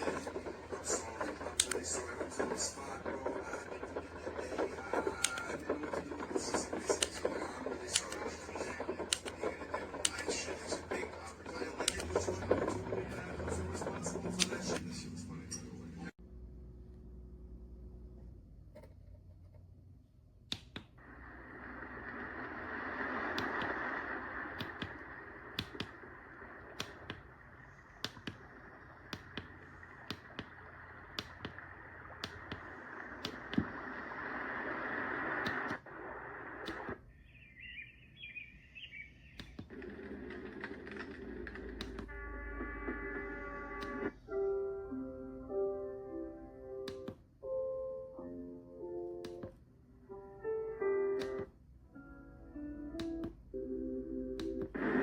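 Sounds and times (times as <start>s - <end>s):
crackling with sharp clicks: 0.0s - 15.1s, 20.4s - 37.8s, 38.4s - 44.2s, 46.8s - 47.4s, 49.2s - 49.6s, 51.1s - 51.6s, 52.9s - 53.5s, 54.4s - 55.0s.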